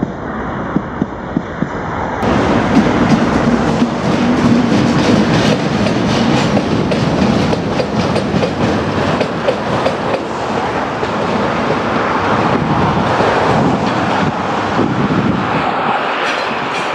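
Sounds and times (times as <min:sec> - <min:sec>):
steady rolling rumble: 0:00.0 - 0:15.8
train wheels clicking over rail joints: 0:00.7 - 0:12.6, 0:16.2 - 0:16.9.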